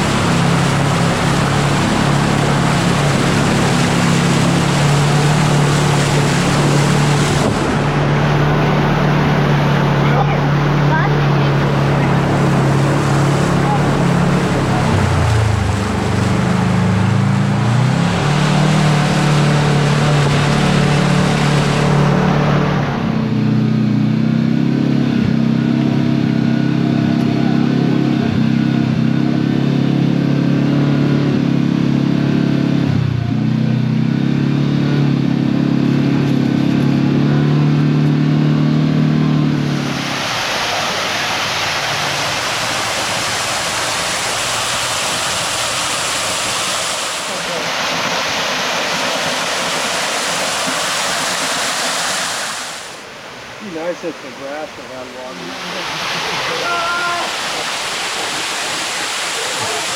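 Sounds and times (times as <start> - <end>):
loud rushing noise: 0.0 - 23.5, 39.4 - 54.0, 55.3 - 59.9
flowing water: 0.0 - 59.9
utility vehicle engine at low revs: 0.0 - 59.9.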